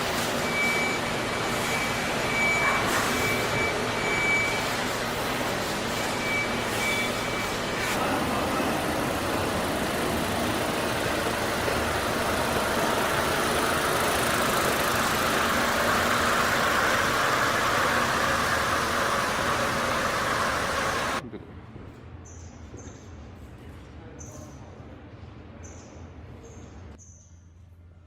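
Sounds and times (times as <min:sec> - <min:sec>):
engine running: 0:00.0 - 0:21.2.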